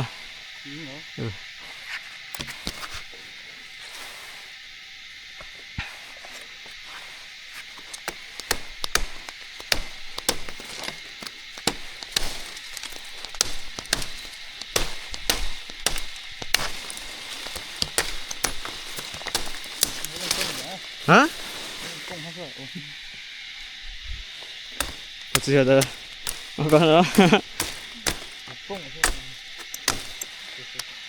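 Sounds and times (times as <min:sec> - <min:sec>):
steady high hiss: 0:00.0 - 0:31.0
chopping strikes on wood: 0:07.6 - 0:22.1, 0:24.6 - 0:30.9.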